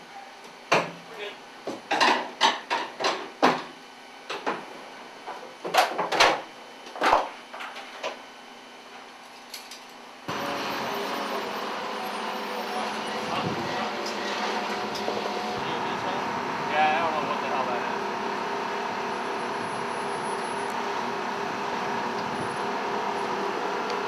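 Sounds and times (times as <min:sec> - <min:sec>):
aircraft engine noise: 0:10.3 - 0:24.0.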